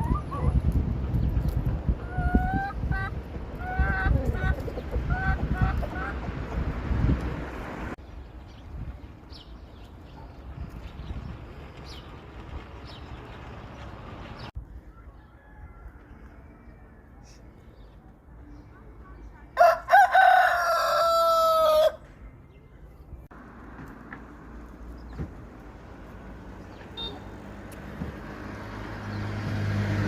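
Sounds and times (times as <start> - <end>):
rooster crowing: 14.9 - 17.1, 19.6 - 22.0.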